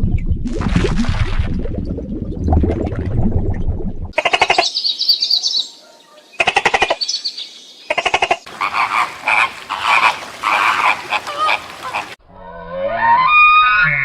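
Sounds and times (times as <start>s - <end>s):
frogs croaking: 6.4s - 12.2s.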